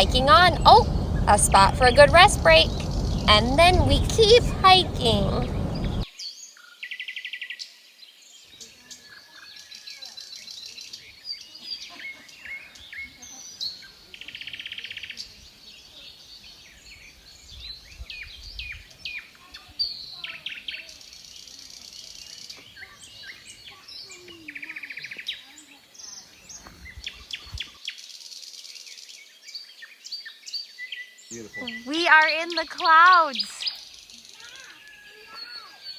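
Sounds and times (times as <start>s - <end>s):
birds chirping: 0.0s - 6.0s, 31.3s - 33.8s.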